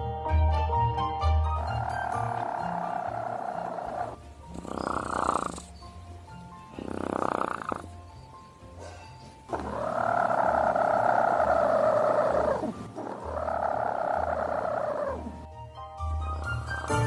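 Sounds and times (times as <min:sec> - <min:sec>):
chicken purring: 0:01.6 - 0:06.0, 0:06.7 - 0:08.2, 0:08.8 - 0:15.5.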